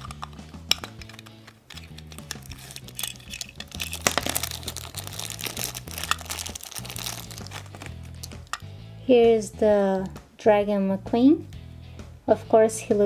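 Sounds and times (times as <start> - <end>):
plastic packaging crinkling: 0.0 - 8.6
background music bass line: 0.0 - 13.0.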